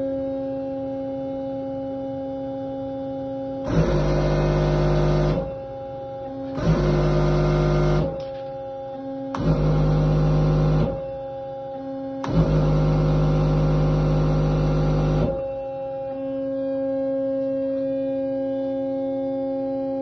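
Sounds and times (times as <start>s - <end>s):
steady hydraulic hum: 3.6s - 16.7s.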